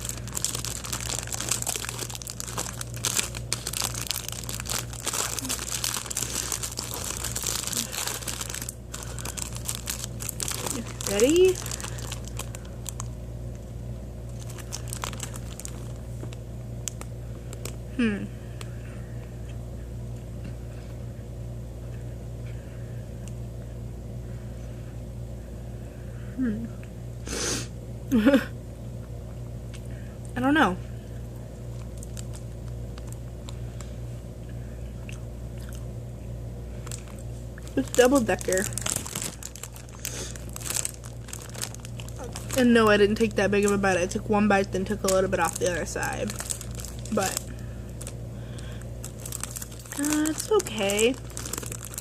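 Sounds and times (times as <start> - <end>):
plastic wrapper crinkling: 0.0 - 13.6, 14.3 - 17.8, 31.7 - 33.9, 36.8 - 52.0
low mechanical hum: 0.0 - 52.0.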